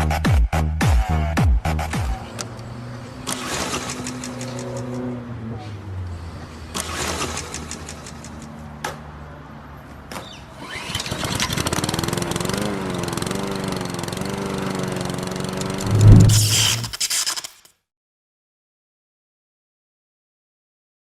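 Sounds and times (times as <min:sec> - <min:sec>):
loud low thump: 0:15.8 - 0:16.8.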